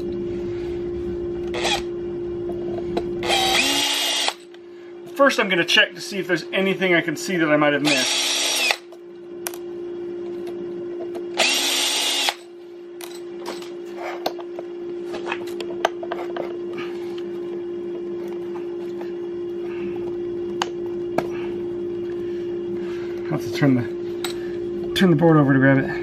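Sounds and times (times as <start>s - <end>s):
electric motor humming: 1.4s - 2.0s, 3.2s - 4.5s, 7.8s - 8.9s, 11.3s - 12.5s
power drill whirring: 1.5s - 1.9s, 3.2s - 4.5s, 7.8s - 8.9s, 11.4s - 12.4s.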